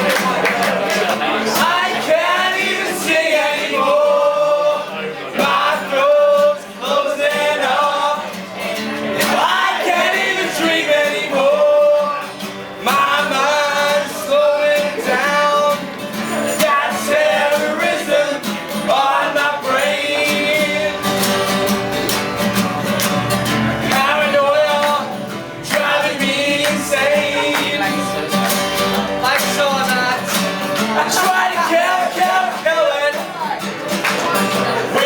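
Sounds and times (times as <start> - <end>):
guitar accompaniment: 0.0 - 35.0
man singing: 1.4 - 21.4, 23.8 - 33.7, 34.5 - 35.0.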